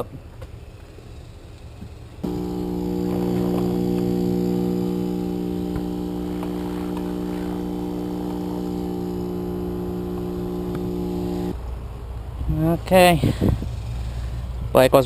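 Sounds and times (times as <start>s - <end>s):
machine humming: 2.2s - 11.6s
faint clicks and knocks: 5.2s - 11.0s.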